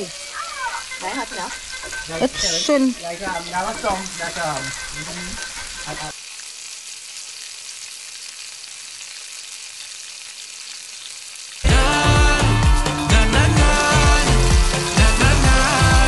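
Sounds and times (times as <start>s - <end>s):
person speaking: 0.0s - 6.1s
food sizzling in hot oil: 0.0s - 16.0s.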